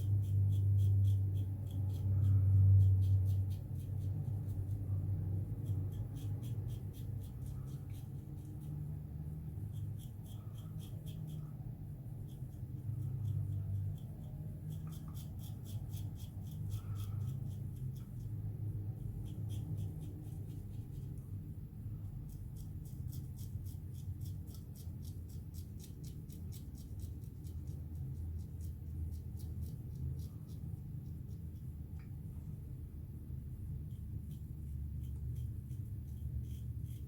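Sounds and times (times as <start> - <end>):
razor scraping stubble: 12.1 - 18.4, 22.2 - 27.8, 33.9 - 37.0.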